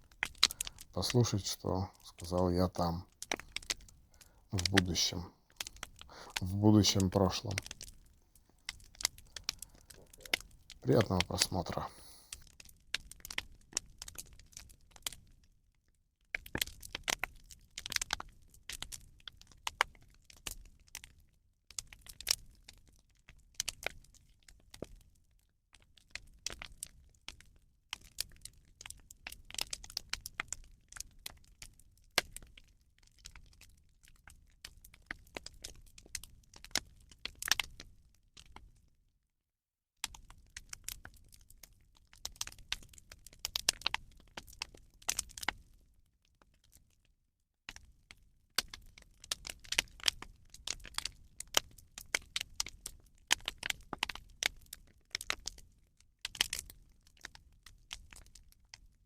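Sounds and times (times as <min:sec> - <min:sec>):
bonfire crackling and popping: 0:00.0 - 0:15.2, 0:16.3 - 0:19.2, 0:28.1 - 0:38.6, 0:40.0 - 0:45.8, 0:47.7 - 0:58.9.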